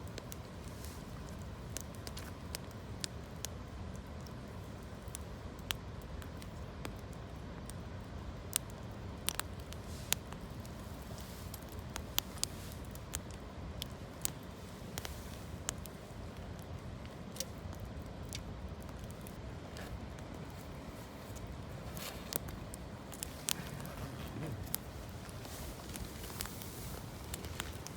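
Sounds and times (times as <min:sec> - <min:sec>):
campfire crackling and popping: 0:00.0 - 0:27.9.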